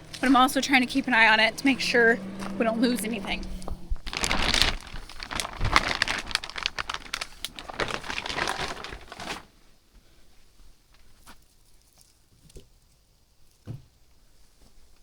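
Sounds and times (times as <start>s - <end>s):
plastic sheeting crinkling: 4.0s - 9.7s.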